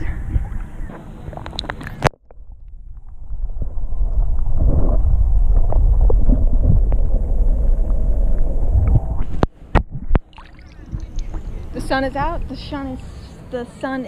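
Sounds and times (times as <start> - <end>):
underwater rumble and sloshing: 0.0 - 13.4.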